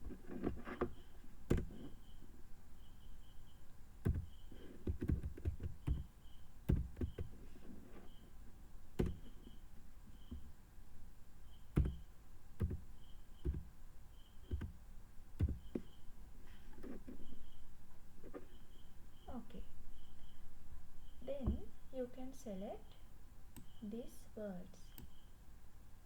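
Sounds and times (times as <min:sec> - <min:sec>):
faint high chirp: 0:00.8 - 0:04.8, 0:05.8 - 0:07.4, 0:11.4 - 0:12.1, 0:12.9 - 0:14.7, 0:15.4 - 0:25.4
keyboard keystrokes: 0:04.1 - 0:06.1, 0:11.7 - 0:12.0, 0:12.6 - 0:13.7.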